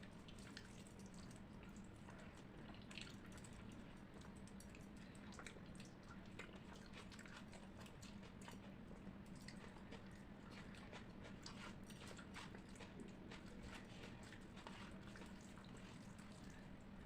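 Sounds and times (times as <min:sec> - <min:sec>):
faint low hum: 0:00.0 - 0:17.0
close chewing mouth clicks: 0:00.3 - 0:16.6.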